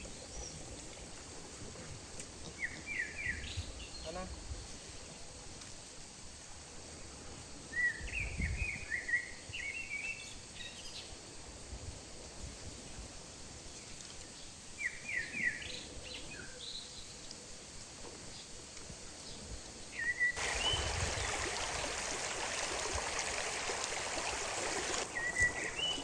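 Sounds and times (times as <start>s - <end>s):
faint outdoor hiss: 0.0s - 26.0s
small birds chirping: 20.4s - 26.0s.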